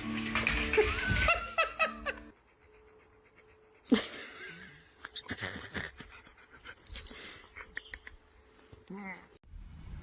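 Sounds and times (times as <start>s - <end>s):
dog panting: 2.3s - 4.4s, 6.0s - 7.8s.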